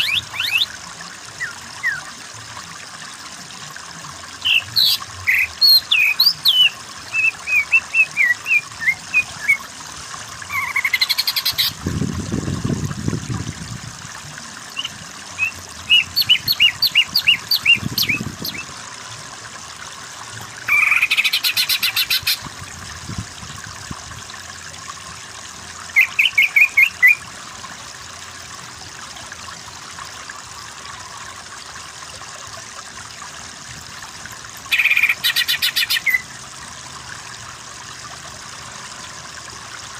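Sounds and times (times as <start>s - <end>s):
water trickling: 0.0s - 39.9s
bird singing whistled notes: 14.8s - 18.6s.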